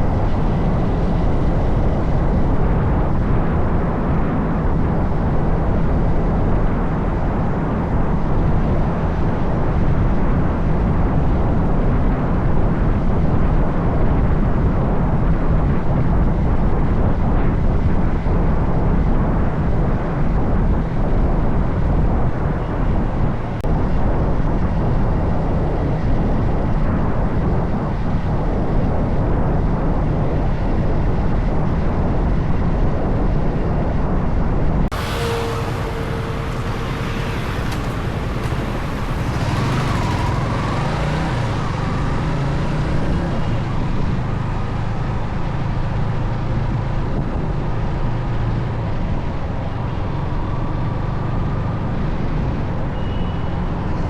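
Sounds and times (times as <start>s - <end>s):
street traffic: 0.0s - 33.9s, 34.8s - 54.0s
wind: 0.0s - 54.0s
horn tone: 34.9s - 43.9s
motorcycle engine rumble: 34.9s - 47.0s.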